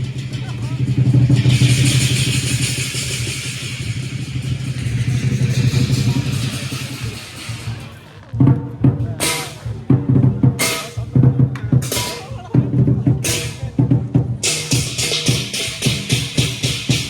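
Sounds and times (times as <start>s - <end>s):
cymbal crashes: 0.0s - 8.2s, 9.2s - 11.2s, 13.2s - 13.8s, 14.4s - 17.0s
large drum beating: 0.0s - 17.0s.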